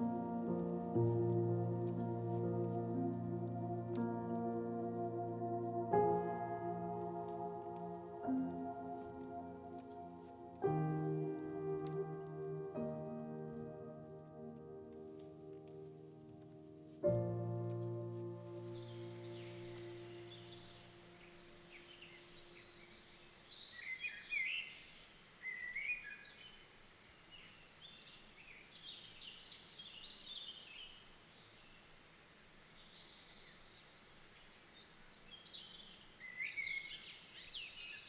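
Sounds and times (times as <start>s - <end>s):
background music: 0.0s - 22.1s.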